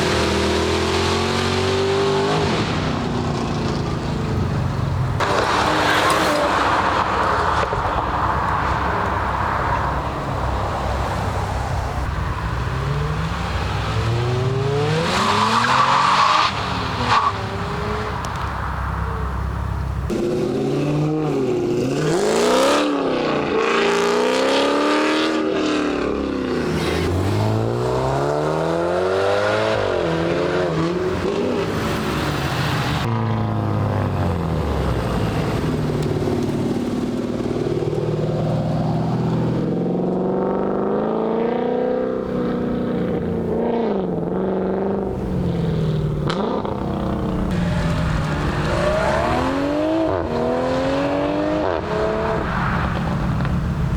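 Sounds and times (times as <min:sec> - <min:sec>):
car engines accelerating hard: 0:00.0 - 0:53.9.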